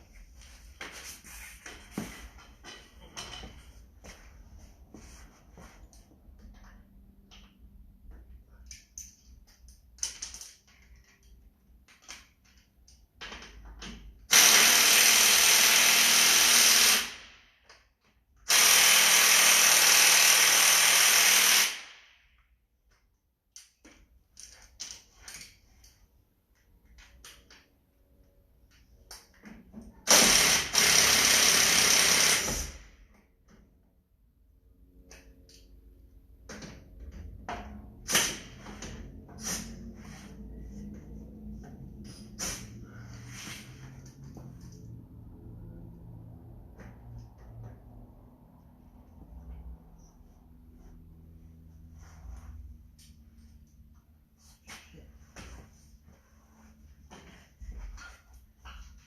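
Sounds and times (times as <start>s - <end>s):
power drill spinning: 14.3s - 17.3s, 18.5s - 21.9s, 30.1s - 32.8s.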